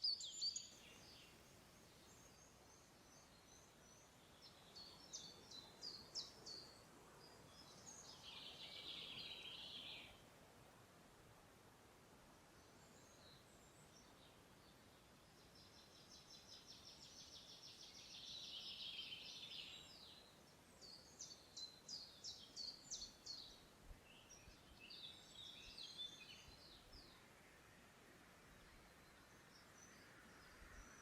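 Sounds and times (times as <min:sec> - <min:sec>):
faint songbird song: 0:00.0 - 0:31.0.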